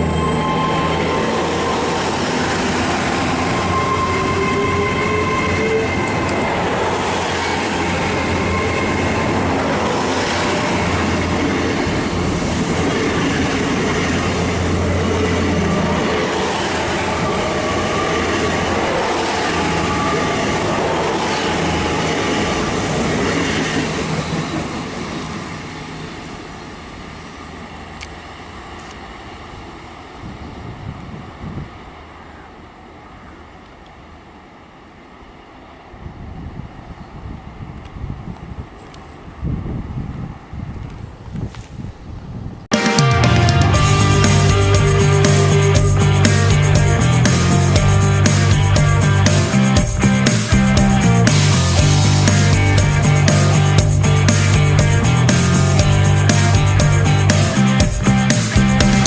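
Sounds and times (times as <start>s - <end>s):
wheels squealing: 0.0s - 26.1s
train rumbling on rails: 0.0s - 59.0s.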